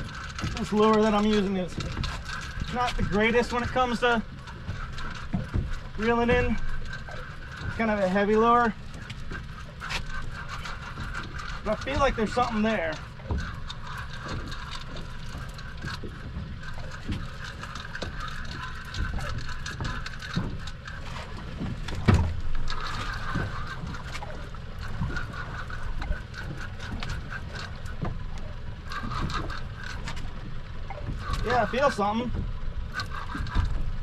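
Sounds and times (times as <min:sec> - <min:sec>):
fishing reel whirring: 0:00.0 - 0:32.1.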